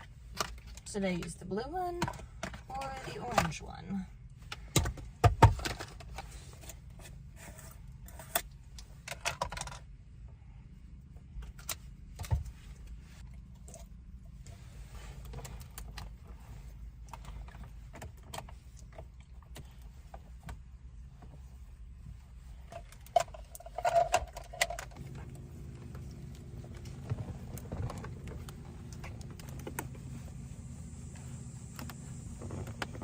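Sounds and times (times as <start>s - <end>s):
small clicks and rattles: 8.3s - 9.9s, 22.6s - 30.2s
steady low rumble: 9.7s - 33.0s
items rustling and clinking: 21.2s - 30.6s.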